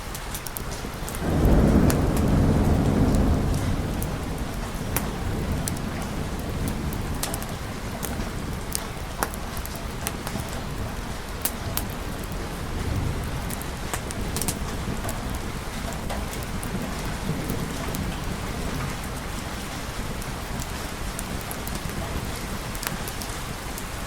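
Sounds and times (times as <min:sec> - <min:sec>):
steady rain: 0:00.0 - 0:24.0
thunder rolling: 0:01.0 - 0:22.8.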